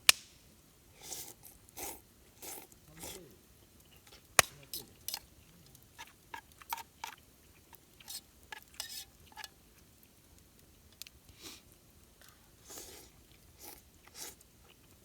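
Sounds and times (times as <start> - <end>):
utensils clinking on cookware: 8.1 - 9.6.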